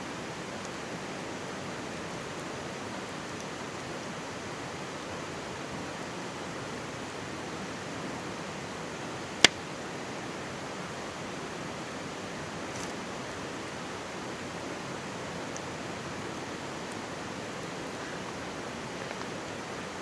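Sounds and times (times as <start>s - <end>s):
faint fire crackles: 0.1s - 20.0s
stream babbling: 0.1s - 20.0s.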